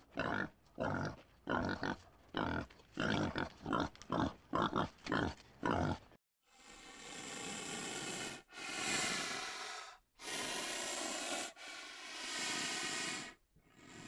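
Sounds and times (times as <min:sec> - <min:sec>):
animal hissing: 0:06.5 - 0:14.0.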